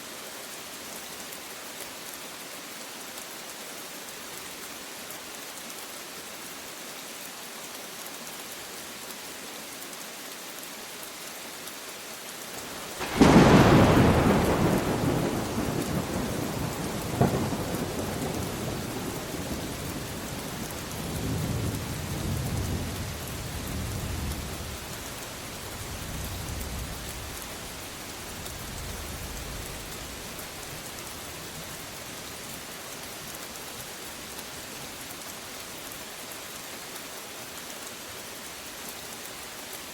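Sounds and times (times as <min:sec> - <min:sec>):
steady rain falling: 0:00.0 - 0:39.9
thunder rumbling: 0:12.9 - 0:24.9
thunderclap: 0:13.0 - 0:19.4.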